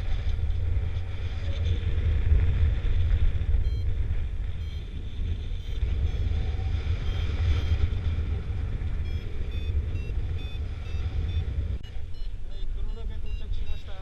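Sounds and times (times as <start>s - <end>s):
wind rushing over microphone: 0.0s - 14.0s
variometer beeping chirps: 3.6s - 5.8s, 6.4s - 14.0s.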